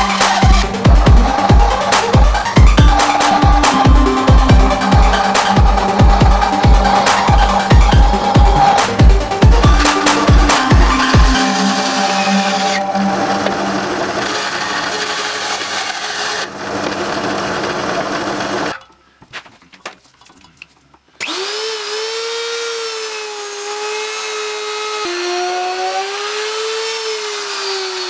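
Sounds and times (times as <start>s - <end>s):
router high whine: 0.0s - 18.7s
bandsaw cutting wood: 0.0s - 18.8s, 21.2s - 28.0s.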